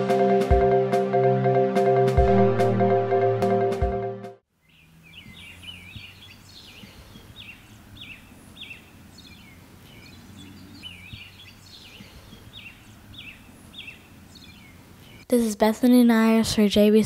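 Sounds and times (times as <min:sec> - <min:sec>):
birds chirping: 0:04.6 - 0:15.6.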